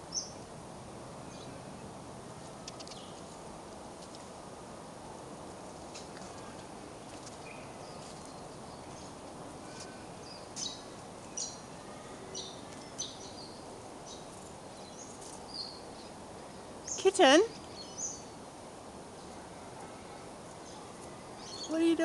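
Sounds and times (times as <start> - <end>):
small birds chirping: 0.0 - 0.5, 2.6 - 3.4, 5.9 - 22.0
outdoor background hiss: 0.0 - 22.0.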